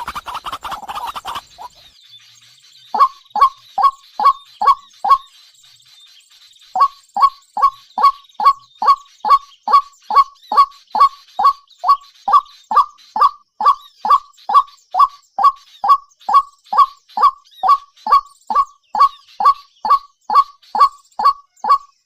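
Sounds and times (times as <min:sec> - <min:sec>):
bird calling in fast series: 0:00.0 - 0:22.0.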